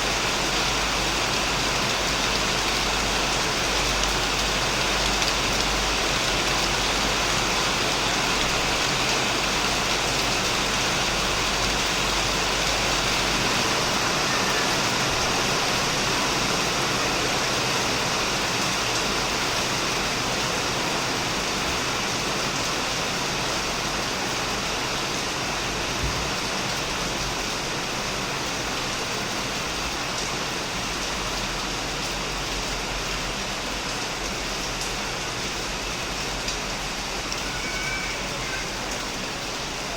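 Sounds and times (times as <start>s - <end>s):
heavy rain on a shed roof: 0.0s - 39.9s.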